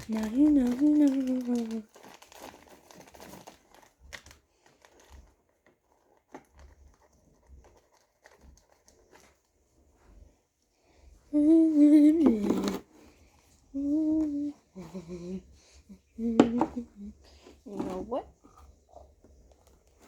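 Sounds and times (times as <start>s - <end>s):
plastic packaging crinkling: 0.0s - 9.4s
person humming: 11.3s - 12.8s, 13.7s - 17.2s.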